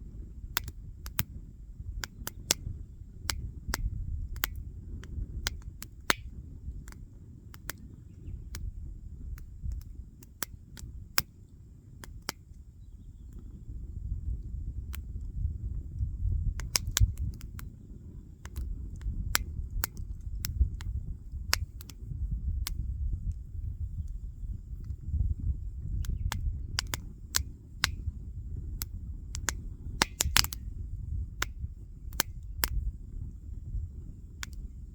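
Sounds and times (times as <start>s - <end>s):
low fire rumble: 0.0s - 34.9s
wood fire crackling: 28.8s - 30.6s.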